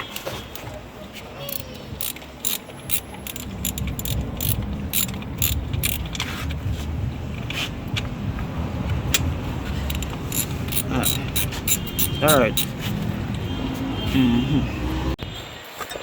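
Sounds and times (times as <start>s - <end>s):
metallic tool clicks and clanks: 1.5s - 6.5s, 9.1s - 12.8s.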